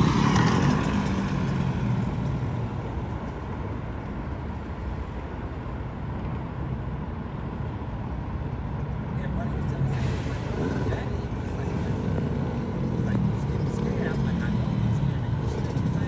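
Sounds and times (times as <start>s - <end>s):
dirt bike engine running: 0.0s - 3.4s, 10.4s - 16.0s.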